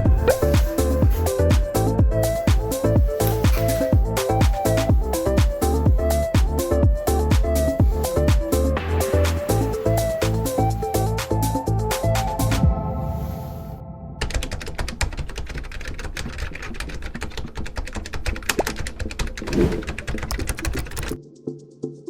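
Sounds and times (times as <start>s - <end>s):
music: 0.0s - 14.6s, 20.0s - 22.0s
fast run of sharp clicks: 15.3s - 21.2s.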